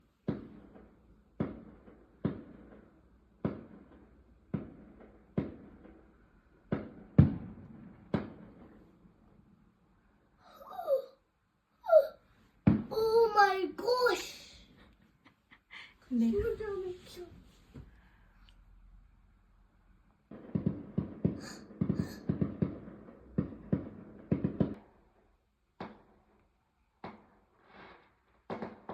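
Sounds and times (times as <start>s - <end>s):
fireworks bangs echoing: 0.2s - 9.4s, 12.6s - 14.4s, 20.2s - 25.0s, 25.8s - 26.4s, 27.0s - 28.9s
high crackles: 20.4s - 24.7s.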